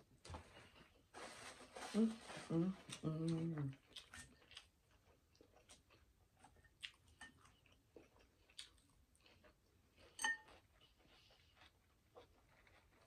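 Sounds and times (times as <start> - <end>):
faint chewing with mouth clicks: 0.2 - 1.1, 2.7 - 13.0
fork clinking glass bowl: 10.2 - 10.6.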